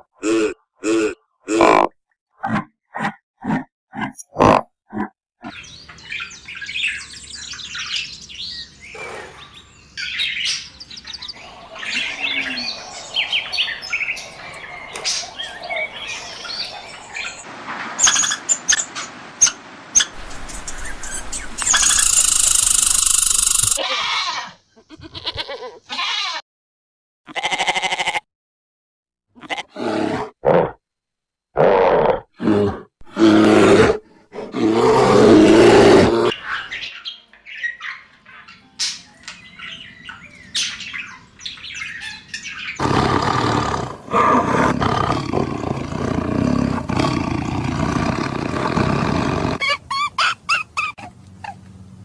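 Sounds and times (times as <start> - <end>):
birds chirping and calling: 5.4 - 23.8, 36.2 - 51.0
buffalo grunting: 42.8 - 49.6.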